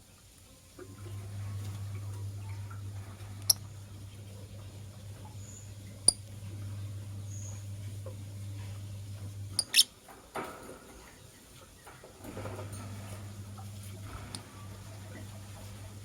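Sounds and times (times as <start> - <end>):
low steady hum: 0.5 - 16.0
high bird squeak: 9.6 - 9.9.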